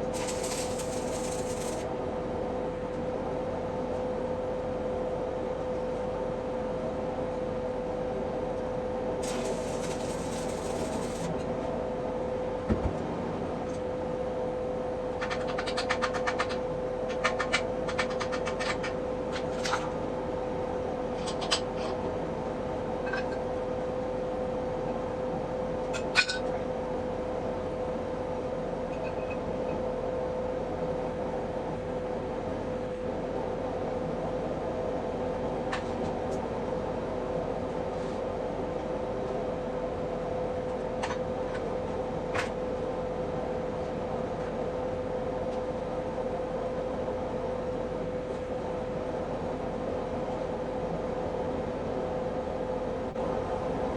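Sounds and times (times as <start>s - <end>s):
steady roar with hum: 0.0s - 28.8s, 29.5s - 53.9s
bursts of dense crackling: 0.2s - 1.8s, 9.2s - 11.3s.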